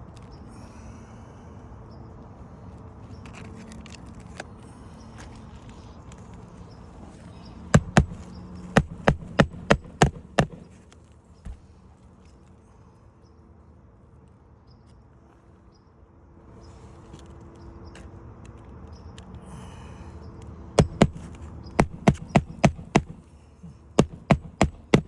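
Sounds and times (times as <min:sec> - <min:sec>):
hammer strikes on shingle roof: 0:07.7 - 0:10.8, 0:20.8 - 0:23.3, 0:24.0 - 0:25.0.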